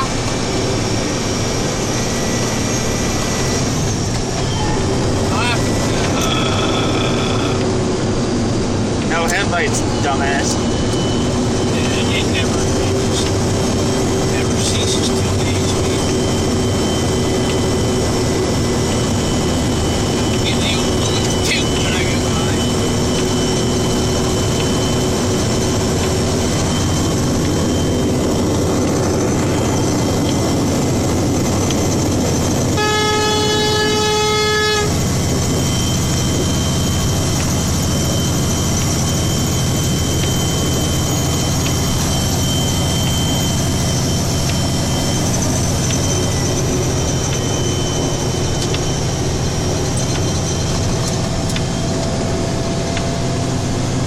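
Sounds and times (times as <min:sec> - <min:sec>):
truck engine and road noise: 0:00.0 - 0:54.0
truck horn toot: 0:32.6 - 0:35.4.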